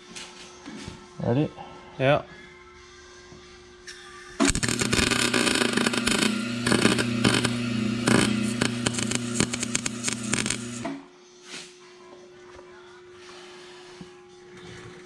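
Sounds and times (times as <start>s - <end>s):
steady electrical hum: 4.4s - 11.0s
welding arc crackle: 4.4s - 11.0s.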